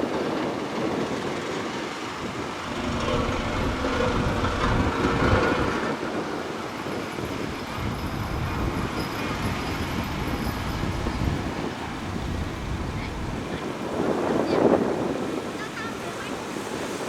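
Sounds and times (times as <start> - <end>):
heavy machinery diesel engine: 0.0 - 13.5.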